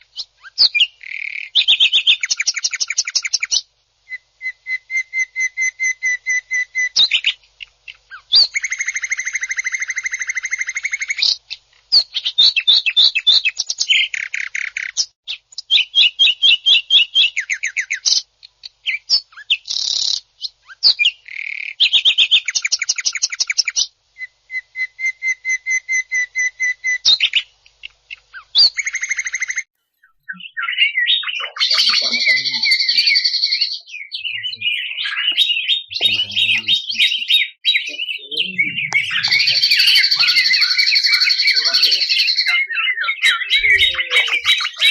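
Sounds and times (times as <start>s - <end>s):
leafbird singing harsh trills: 28.1s - 44.9s.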